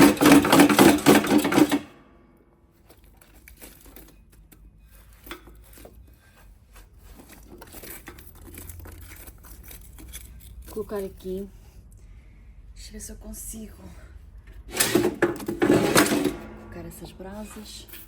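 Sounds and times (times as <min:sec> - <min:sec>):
crinkling and scraping: 0:00.0 - 0:12.0, 0:14.2 - 0:18.0
rustling scrape: 0:02.7 - 0:11.9, 0:14.6 - 0:18.0.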